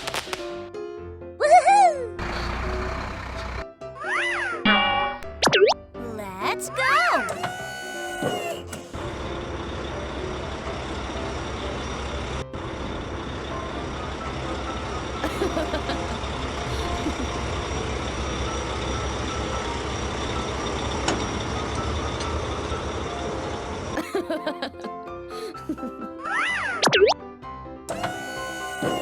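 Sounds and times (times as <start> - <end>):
cartoon truck engine rumble: 2.2 - 3.7, 8.6 - 24.7.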